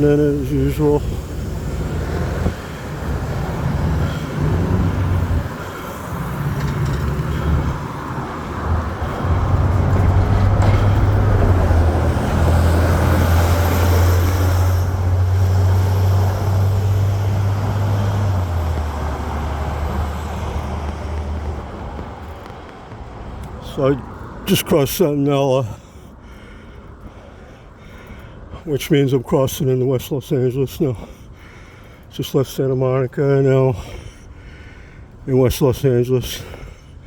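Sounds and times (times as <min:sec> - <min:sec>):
low engine drone: 0:00.0 - 0:21.6
traffic noise: 0:00.0 - 0:37.0.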